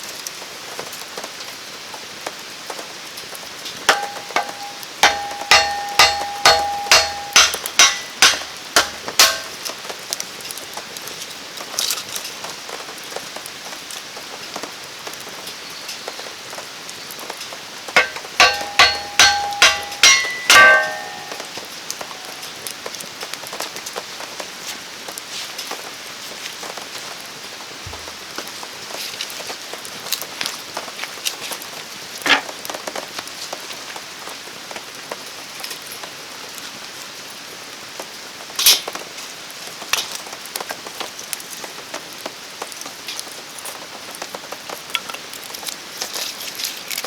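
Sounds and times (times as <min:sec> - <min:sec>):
rain falling: 0:00.0 - 0:47.0
sharp ringing knocks: 0:03.9 - 0:09.6, 0:18.0 - 0:21.6.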